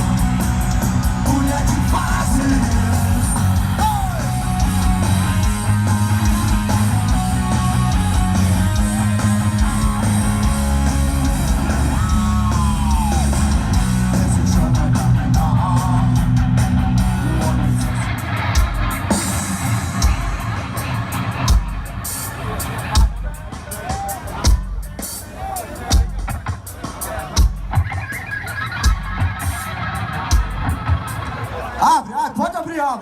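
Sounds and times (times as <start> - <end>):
heavy bass: 0.0 - 23.4
distorted electric guitar: 0.0 - 23.6, 27.4 - 31.8
live rock band playing: 0.0 - 32.9.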